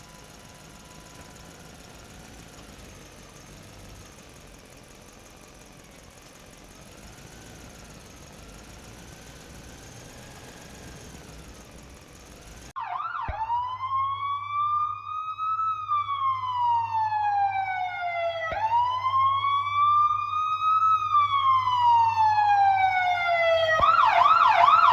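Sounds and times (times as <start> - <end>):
siren wailing: 0.0 - 3.1, 6.8 - 24.9.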